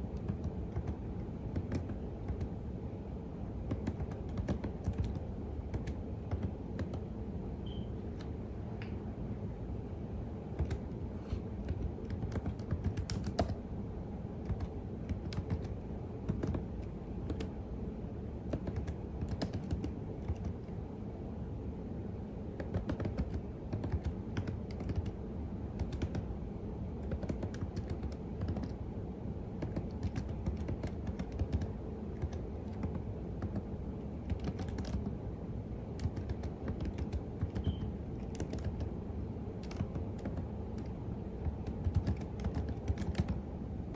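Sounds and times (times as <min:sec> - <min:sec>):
computer keyboard typing: 0:00.0 - 0:02.6, 0:03.6 - 0:07.1, 0:10.6 - 0:11.0, 0:11.6 - 0:13.6, 0:14.4 - 0:17.6, 0:18.5 - 0:20.8, 0:22.6 - 0:25.2, 0:25.8 - 0:26.3, 0:27.0 - 0:28.8, 0:29.6 - 0:35.2, 0:36.0 - 0:39.0, 0:39.6 - 0:43.4
low steady hum: 0:00.0 - 0:43.9.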